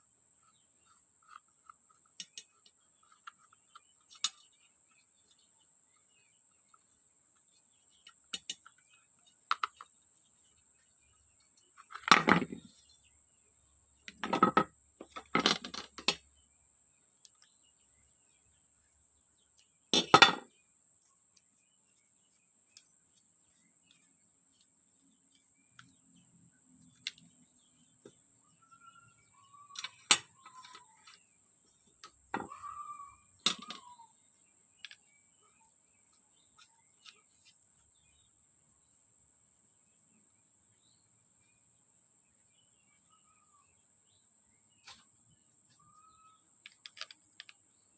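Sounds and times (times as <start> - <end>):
small parts and tools clicking: 0.8 - 5.4, 6.7 - 10.0, 14.0 - 16.3, 26.8 - 27.5, 29.7 - 31.2, 33.4 - 34.0, 34.8 - 35.1, 46.6 - 47.7.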